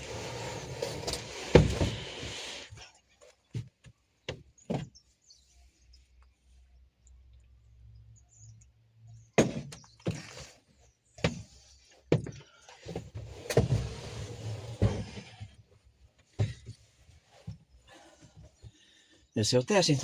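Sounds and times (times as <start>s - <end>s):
scraping: 0.0s - 2.8s, 12.8s - 18.7s.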